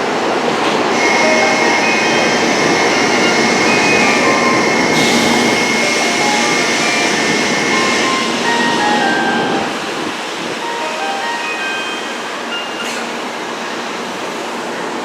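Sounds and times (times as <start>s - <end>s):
train rushing past: 0.1s - 12.5s
high whine: 0.9s - 10.6s.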